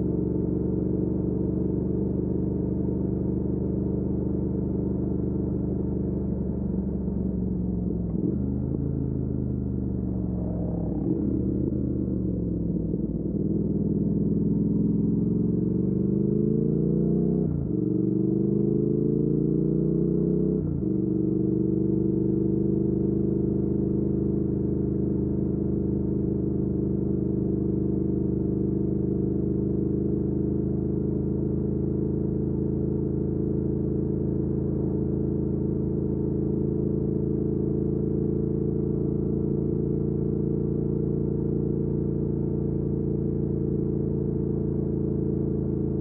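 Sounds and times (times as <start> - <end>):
motorcycle engine cruising: 6.4 - 19.4.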